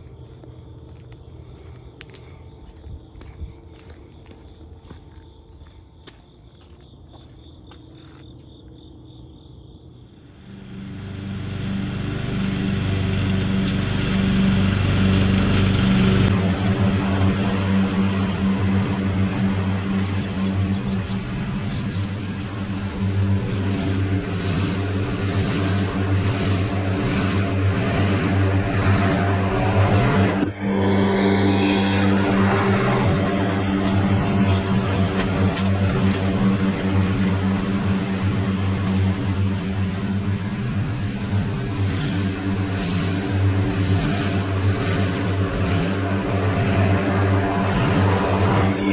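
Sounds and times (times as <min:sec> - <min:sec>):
crickets chirping: 0:00.0 - 0:10.7, 0:16.4 - 0:30.2
engine running loudly: 0:10.3 - 0:48.9.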